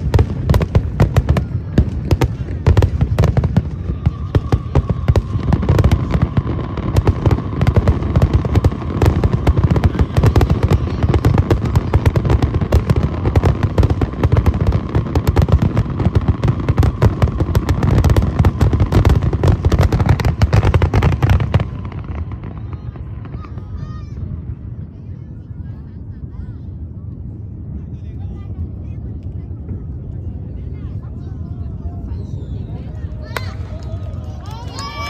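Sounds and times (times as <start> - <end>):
fireworks booming and crackling: 0.0 - 35.0
faint firework whistle: 32.0 - 34.0.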